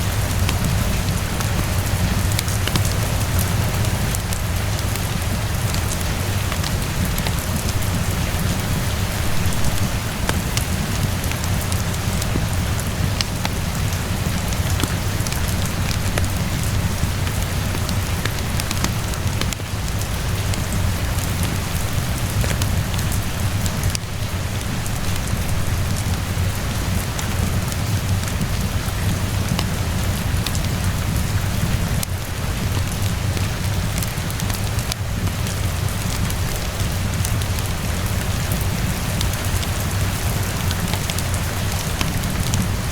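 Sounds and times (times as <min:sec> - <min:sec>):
steady rainfall: 0:00.0 - 0:42.9
wood fire crackling: 0:00.0 - 0:42.9.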